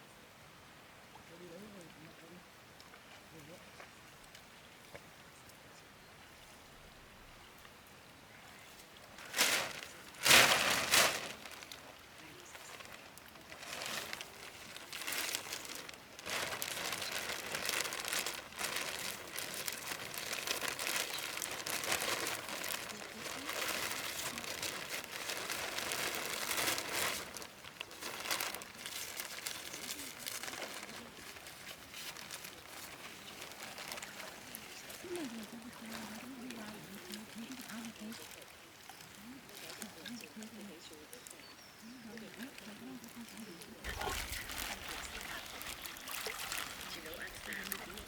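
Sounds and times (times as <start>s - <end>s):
crinkly rustling and crackling: 9.2s - 48.0s.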